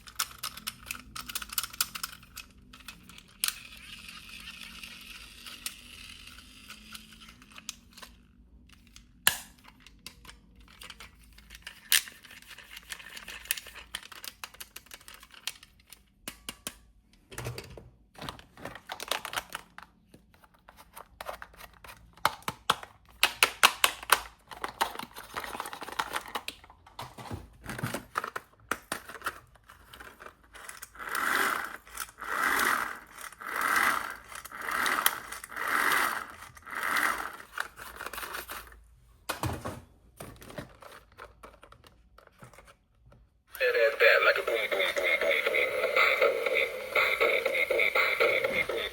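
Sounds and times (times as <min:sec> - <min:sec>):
plastic toy parts clicking: 0:00.0 - 0:16.9, 0:20.8 - 0:26.7
plastic and cardboard crinkling: 0:40.2 - 0:43.0.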